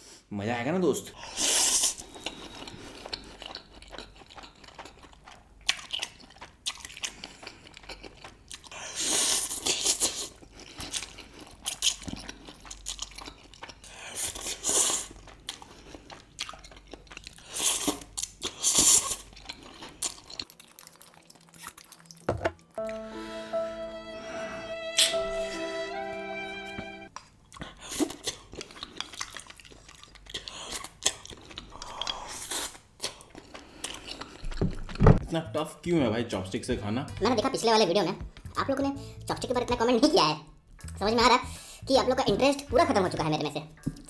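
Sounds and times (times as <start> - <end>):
wet chewing: 1.5 - 22.8, 27.2 - 35.2.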